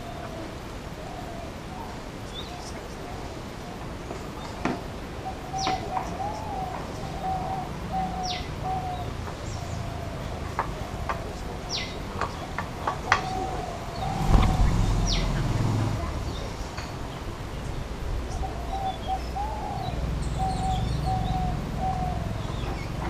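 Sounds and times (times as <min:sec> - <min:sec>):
wavering bird call: 0:05.3 - 0:12.0, 0:18.3 - 0:23.0
low rumble: 0:13.8 - 0:16.6.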